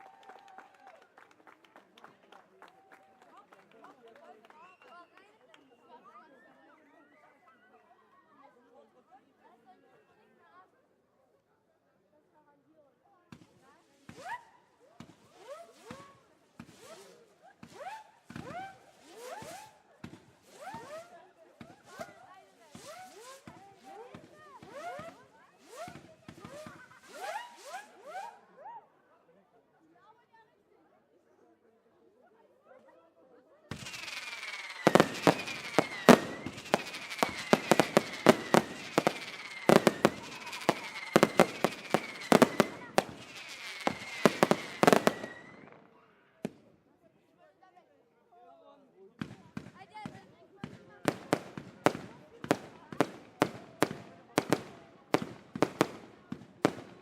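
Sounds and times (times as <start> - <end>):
whistling fireworks cracking: 15.0 - 28.4, 33.7 - 45.9, 51.0 - 57.0.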